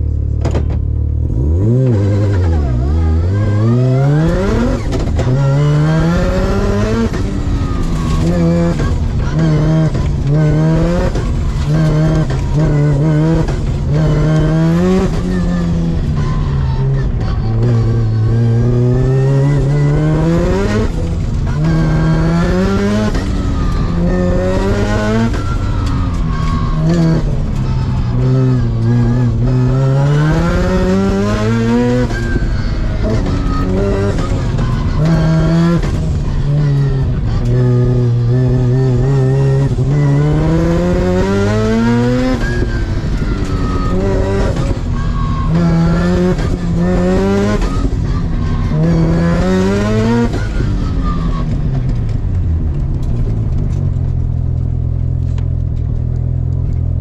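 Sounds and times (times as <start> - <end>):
car engine idling: 0.0 - 40.9
car engine revving: 0.0 - 57.0.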